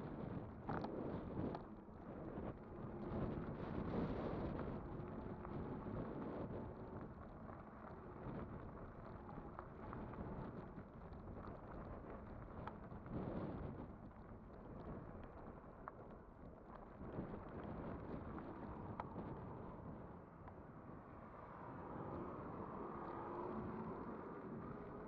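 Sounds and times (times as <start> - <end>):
wind buffeting microphone: 0.0 - 25.0
small rattles and clicks: 0.6 - 1.7, 2.4 - 19.4.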